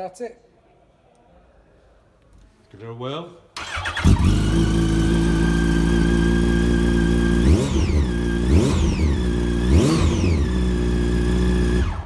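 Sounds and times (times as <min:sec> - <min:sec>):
motorcycle engine revving: 0:03.6 - 0:12.0.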